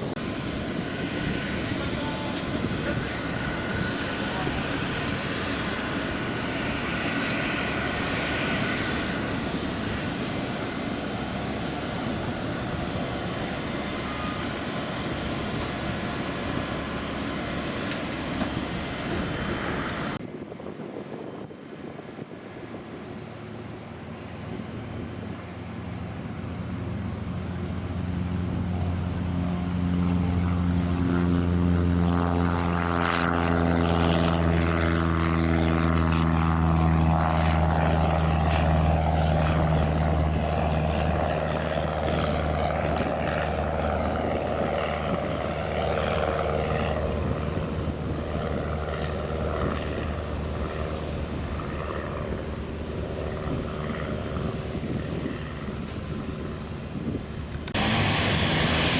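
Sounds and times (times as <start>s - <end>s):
propeller airplane engine drone: 0.0s - 58.9s
noisy sound cutting off: 57.6s - 58.9s.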